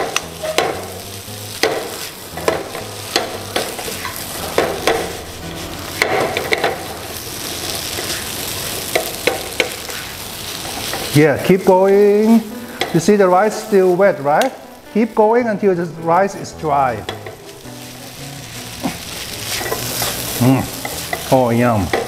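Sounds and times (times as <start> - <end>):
spatula scraping and tapping pan: 0.0 - 1.0, 1.6 - 5.2, 5.9 - 7.0, 7.7 - 11.2, 17.0 - 17.6, 18.9 - 22.0
rice sizzling in a pan: 0.0 - 22.0.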